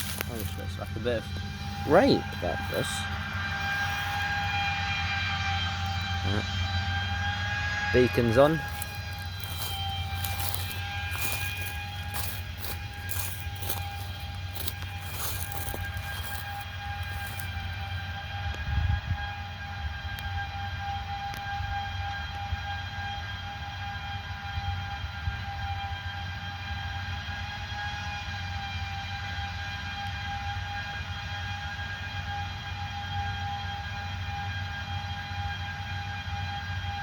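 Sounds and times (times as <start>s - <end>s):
low engine rumble: 0.0s - 18.2s
steady high whine: 0.0s - 22.6s.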